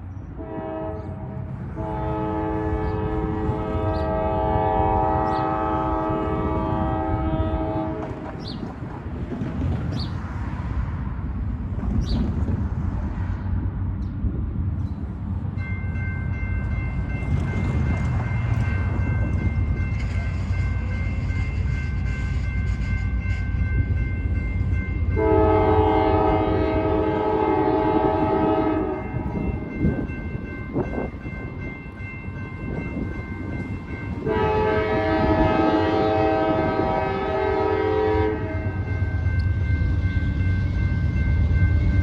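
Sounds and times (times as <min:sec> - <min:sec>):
freight train rumble: 0:00.0 - 0:42.0
locomotive air horn chord: 0:00.4 - 0:08.2, 0:25.2 - 0:29.5, 0:34.1 - 0:39.0.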